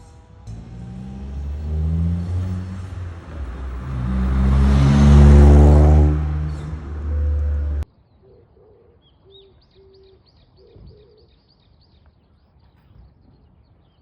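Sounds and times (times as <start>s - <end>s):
car engine accelerating: 0.0s - 7.8s.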